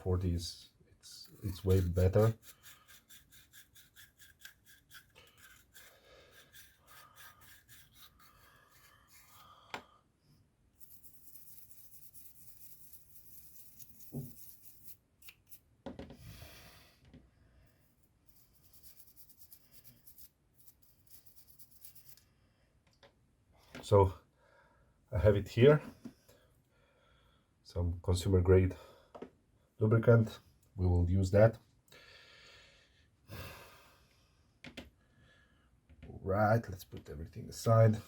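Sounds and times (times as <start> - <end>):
rubbing and scraping of small parts: 1.0 - 9.5, 10.8 - 16.2, 17.8 - 22.3.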